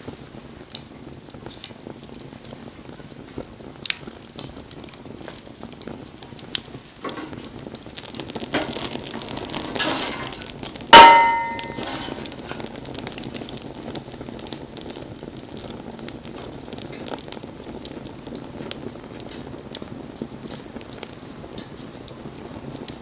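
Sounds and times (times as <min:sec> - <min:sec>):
wood fire crackling: 0:00.0 - 0:23.0
loud metallic clang: 0:09.8 - 0:12.3.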